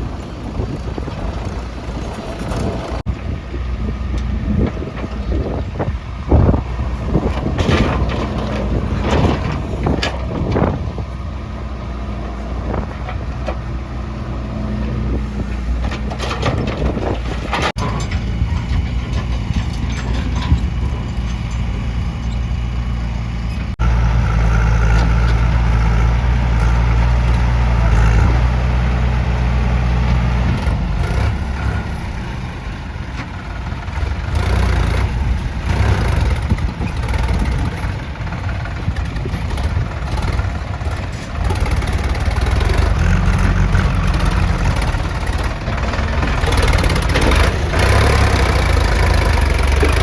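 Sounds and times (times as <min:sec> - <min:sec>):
diesel engines running: 0:00.0 - 0:50.0
clanks and knocks: 0:07.2 - 0:10.8, 0:15.8 - 0:22.8, 0:33.1 - 0:50.0.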